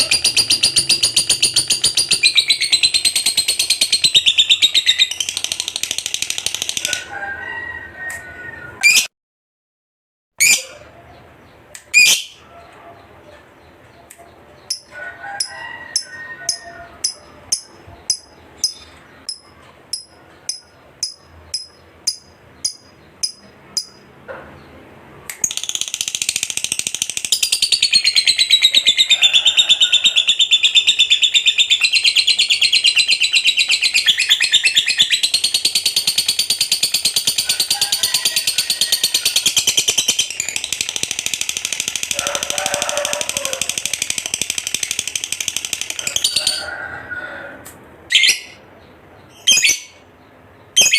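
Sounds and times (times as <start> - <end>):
lovebird chirping and trilling: 0.0 - 7.1, 8.8 - 9.1, 10.4 - 10.9, 11.8 - 12.4, 14.6 - 24.1, 25.4 - 46.6, 48.1 - 48.6, 49.2 - 50.0, 50.6 - 50.9.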